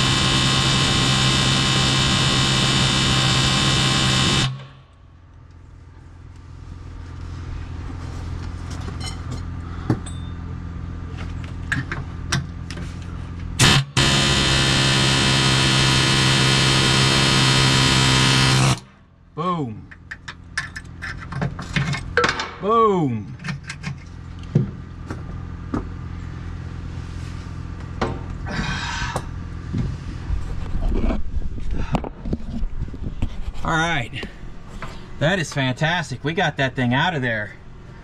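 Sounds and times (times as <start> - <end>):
power cutting tool running: 0.0 - 4.8, 13.6 - 18.9
sharp clicks and knocks: 19.9 - 22.6.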